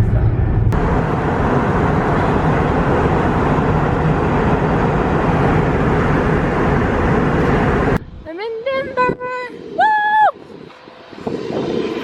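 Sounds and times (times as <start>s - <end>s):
vehicle interior rumble: 0.0s - 8.3s.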